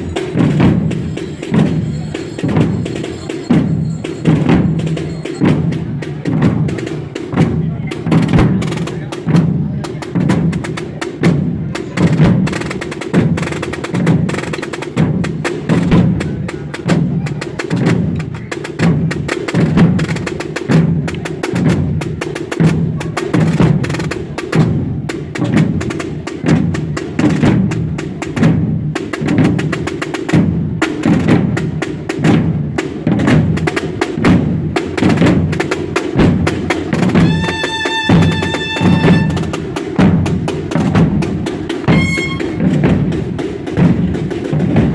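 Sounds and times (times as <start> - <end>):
marching drums: 0.0 - 44.9
high held tone: 37.2 - 39.6, 41.9 - 42.7.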